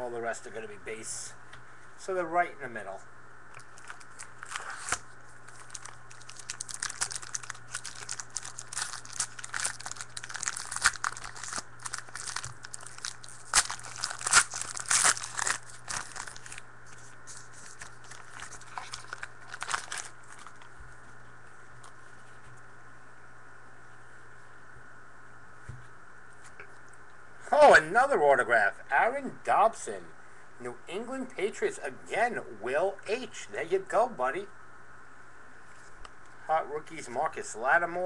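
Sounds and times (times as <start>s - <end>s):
faint steady hum: 0.0s - 38.0s
cards rustling: 3.6s - 20.7s
wrappers crinkling and tearing: 3.6s - 20.7s.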